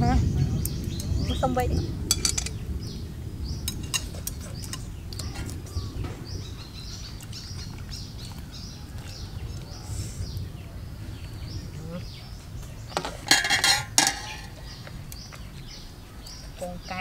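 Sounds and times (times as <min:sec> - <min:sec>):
low background rumble: 0:00.0 - 0:17.0
small birds chirping: 0:00.0 - 0:17.0
utensils clinking on dishes: 0:02.1 - 0:02.5, 0:13.0 - 0:14.6.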